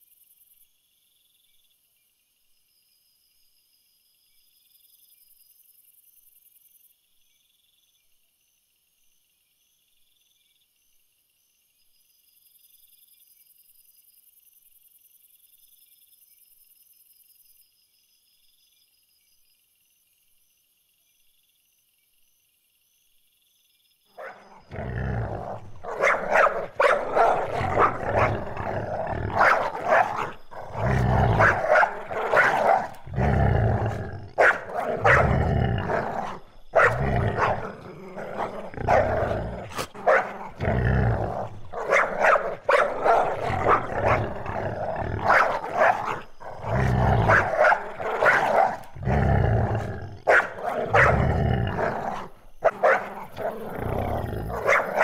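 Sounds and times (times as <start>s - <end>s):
loud animal calls: 24.2s - 55.0s.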